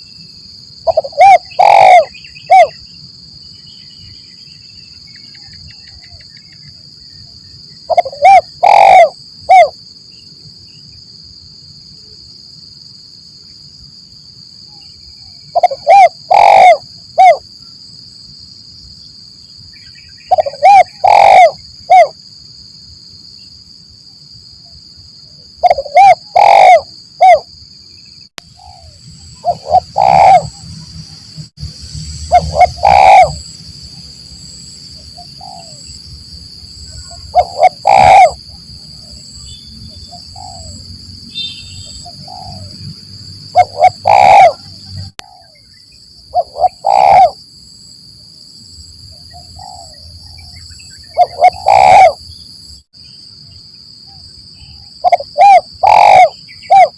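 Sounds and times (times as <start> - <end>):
dove cooing: 0.8 - 2.8, 7.9 - 9.7, 15.6 - 17.4, 20.3 - 22.1, 25.6 - 27.4, 28.6 - 30.8, 32.3 - 33.4, 35.2 - 35.8, 36.9 - 38.4, 40.1 - 40.8, 42.0 - 42.8, 43.5 - 45.6, 46.3 - 47.4, 51.1 - 52.2, 55.0 - 56.9.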